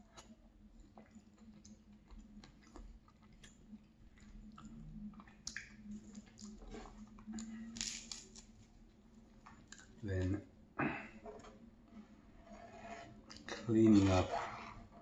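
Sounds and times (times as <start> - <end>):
chewing and wet mouth smacks: 0.0 - 7.6
faint steady hum: 0.0 - 15.0.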